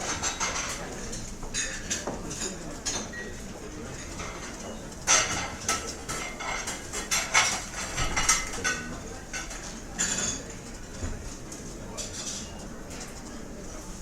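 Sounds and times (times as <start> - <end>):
plates and cutlery clinking: 0.0 - 11.2.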